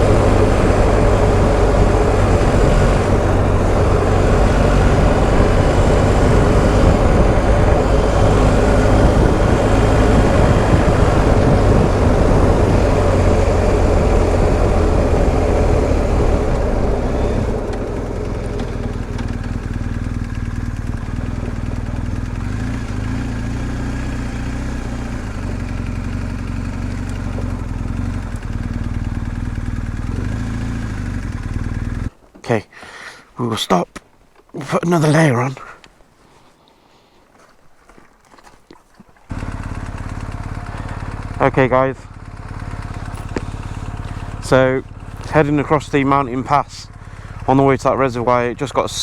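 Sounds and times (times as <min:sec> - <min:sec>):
wind rush: 0:00.0 - 0:19.4
motorcycle engine running: 0:00.0 - 0:32.2, 0:39.3 - 0:49.0.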